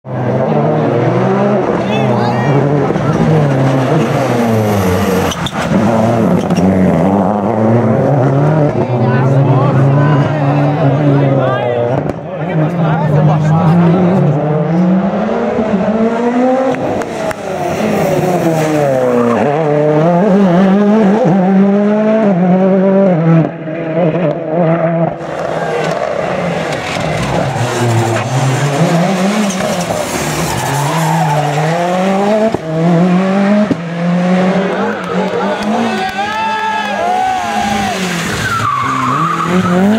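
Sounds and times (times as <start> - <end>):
rally car engine revving: 0.0 - 39.9
tyres squealing and skidding: 1.8 - 7.1, 17.1 - 19.9, 25.2 - 32.3, 34.6 - 39.9.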